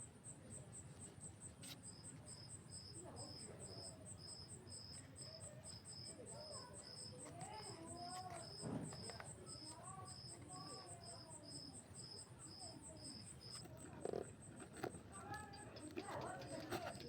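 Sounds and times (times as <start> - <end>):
lower insect chirping: 1.9 - 13.7.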